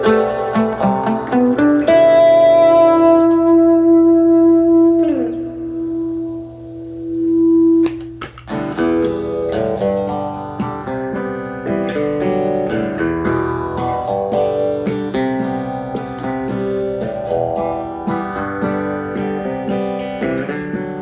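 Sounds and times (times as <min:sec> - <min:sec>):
acoustic guitar chords: 0:00.0 - 0:21.0.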